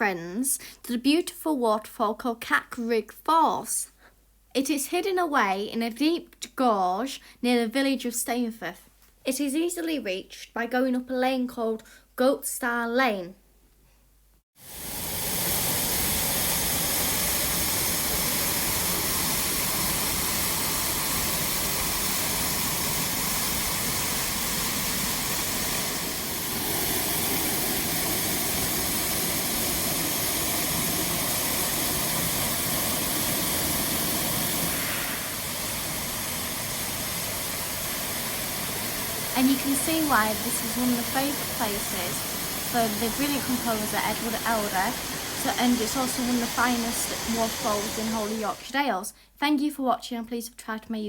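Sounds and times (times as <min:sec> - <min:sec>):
waterfall rushing: 0:14.8 - 0:48.7.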